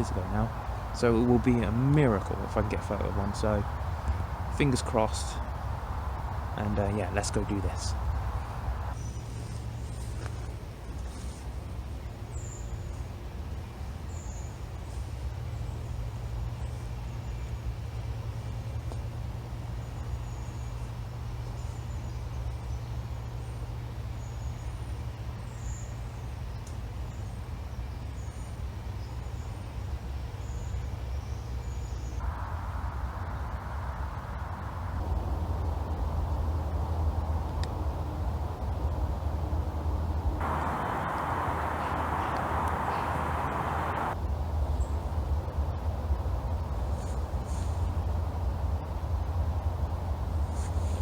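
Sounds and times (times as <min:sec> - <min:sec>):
low rumble of background noise: 0:00.0 - 0:51.0
small birds chirping: 0:40.4 - 0:44.2.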